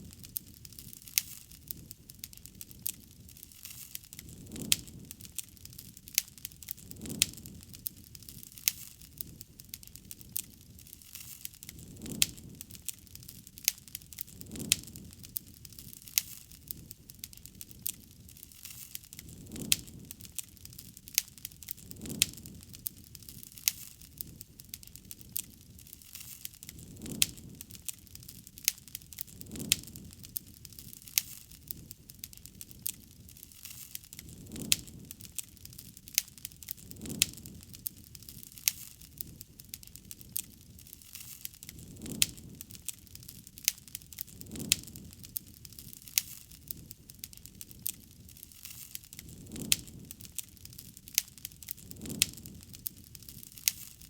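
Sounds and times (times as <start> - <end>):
campfire crackling and popping: 0.0 - 54.0
soft rush of flame: 0.0 - 54.0.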